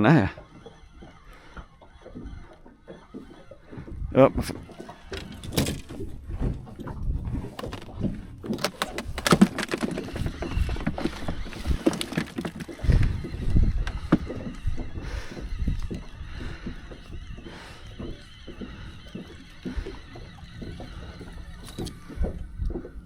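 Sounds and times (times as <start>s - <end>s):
knocks and rattles of fishing gear: 0.2s - 23.0s
wind rumble on microphone: 3.8s - 9.4s, 12.6s - 23.0s.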